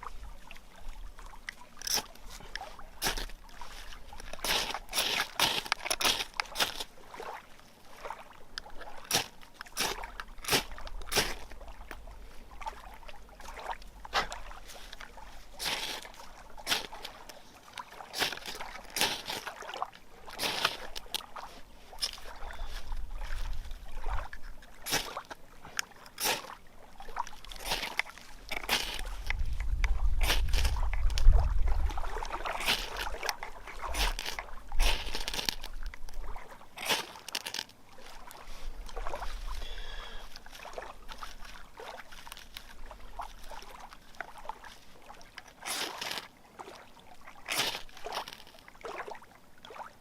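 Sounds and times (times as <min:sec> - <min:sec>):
ferro rod scraping: 0:01.8 - 0:06.9, 0:15.6 - 0:17.3, 0:18.2 - 0:19.5, 0:20.4 - 0:21.2, 0:27.5 - 0:31.3, 0:32.5 - 0:33.2, 0:33.8 - 0:35.7, 0:36.8 - 0:37.7, 0:45.6 - 0:46.3.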